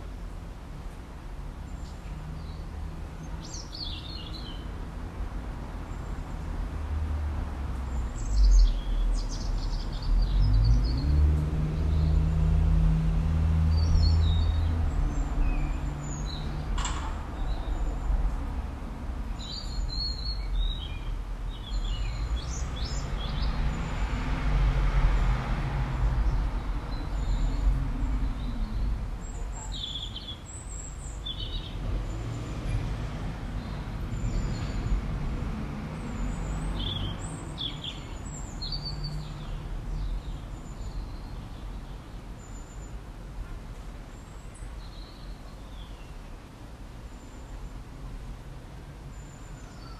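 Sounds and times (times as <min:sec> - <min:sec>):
small birds chirping: 0:01.6 - 0:04.8, 0:07.8 - 0:18.4, 0:19.3 - 0:24.2, 0:26.2 - 0:32.8, 0:35.9 - 0:43.1.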